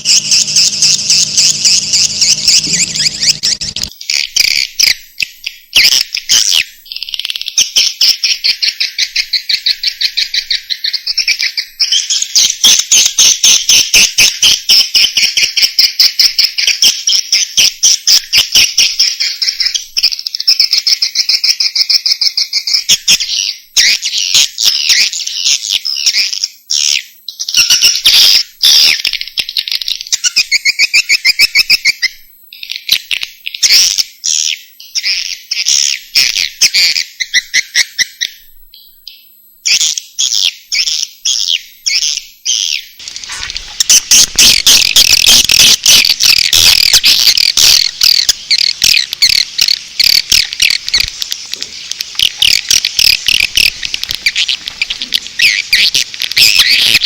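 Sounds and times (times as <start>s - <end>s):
swiftlet chirping calls: 0.0s - 4.4s, 40.6s - 57.0s.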